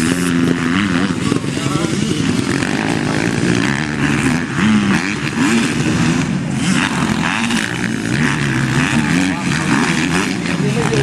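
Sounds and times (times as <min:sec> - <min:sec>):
motocross bike engines revving: 0:00.0 - 0:11.0.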